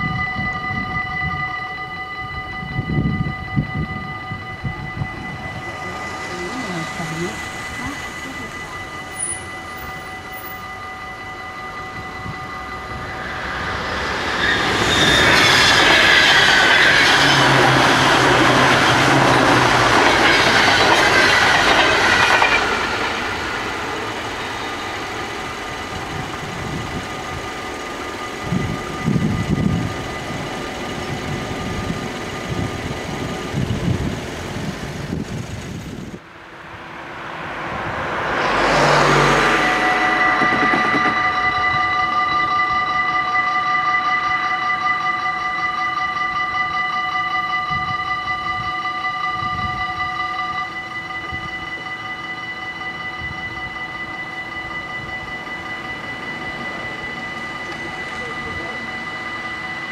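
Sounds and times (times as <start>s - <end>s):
level-crossing bells ringing: 0.0s - 34.9s, 36.7s - 59.9s
train wheels on rails: 2.7s - 46.8s, 47.4s - 59.9s.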